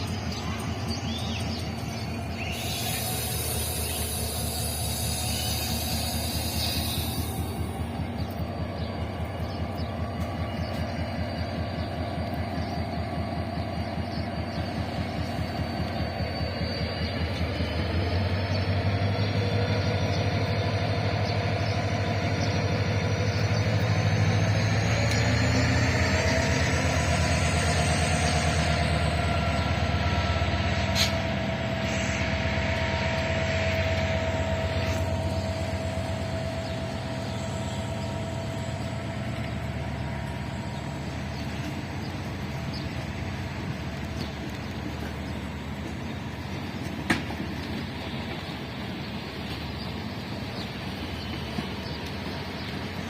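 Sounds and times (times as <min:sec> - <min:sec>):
high whine: 0:00.0 - 0:18.8, 0:22.6 - 0:43.1
locomotive engine drone: 0:00.0 - 0:53.0.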